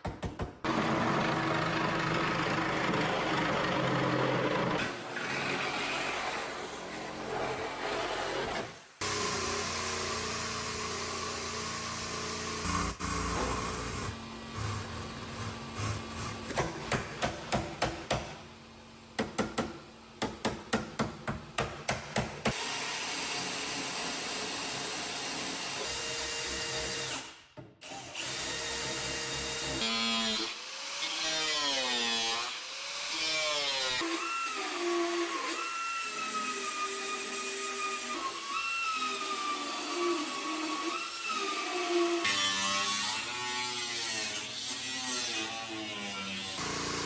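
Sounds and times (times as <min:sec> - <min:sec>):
power tool running: 0:00.6 - 0:16.8, 0:45.4 - 0:47.0.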